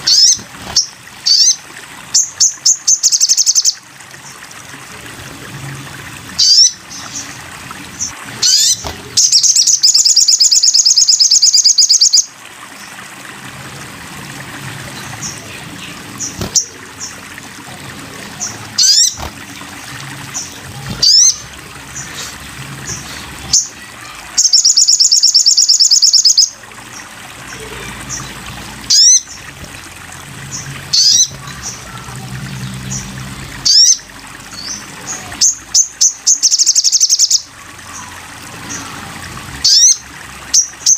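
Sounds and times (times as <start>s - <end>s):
fast high bird trill: 8.4s - 12.3s, 18.4s - 19.2s, 24.4s - 26.5s
songbird call notes: 8.4s - 12.3s, 24.4s - 26.6s.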